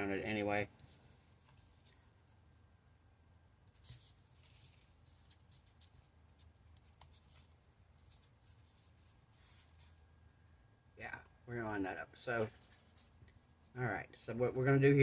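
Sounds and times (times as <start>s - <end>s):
low steady hum: 0.0s - 15.0s
vinyl sheet rustling and scratching: 0.4s - 2.7s, 3.7s - 10.1s, 12.1s - 13.8s.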